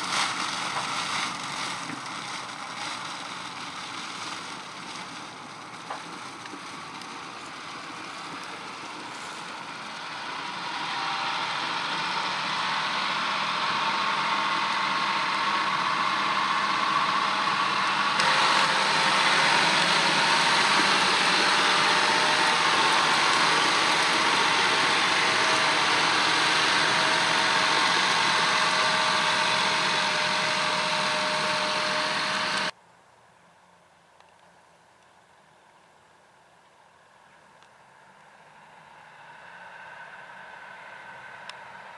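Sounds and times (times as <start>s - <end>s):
steady mechanical whine: 0.0s - 32.8s
tractor engine under load: 0.0s - 32.8s.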